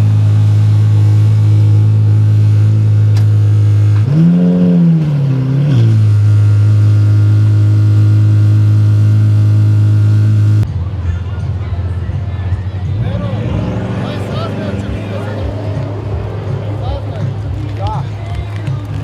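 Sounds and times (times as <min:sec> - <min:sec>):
engine rev blip: 0:00.0 - 0:10.7
supercar engine running: 0:00.0 - 0:10.7, 0:12.6 - 0:19.0.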